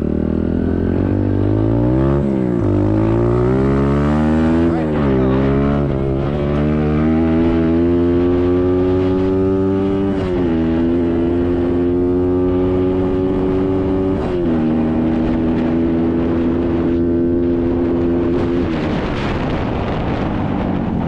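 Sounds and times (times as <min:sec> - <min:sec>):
dirt bike engine revving: 0:00.0 - 0:16.2.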